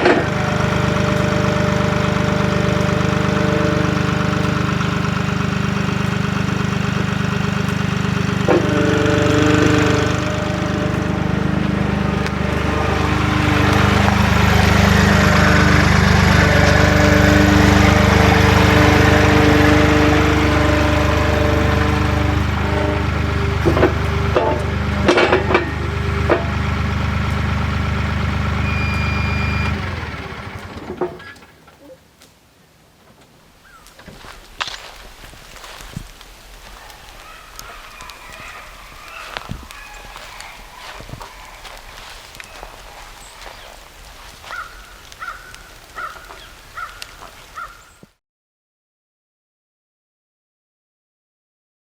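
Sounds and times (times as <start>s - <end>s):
diesel engine running: 0.0s - 31.7s, 33.9s - 46.4s
sharp metallic clanks: 6.0s - 27.5s.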